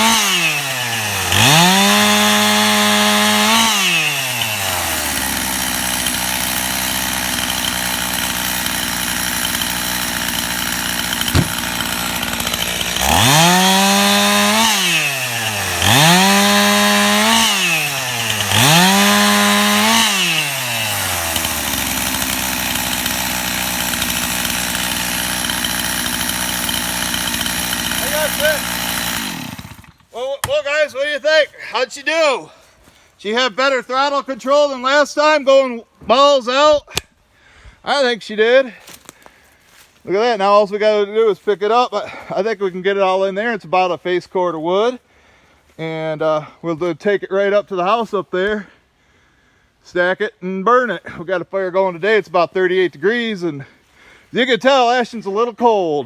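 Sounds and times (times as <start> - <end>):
chainsaw idling: 0.0 - 30.8
chainsaw sawing through wood: 0.0 - 35.0, 38.7 - 48.8.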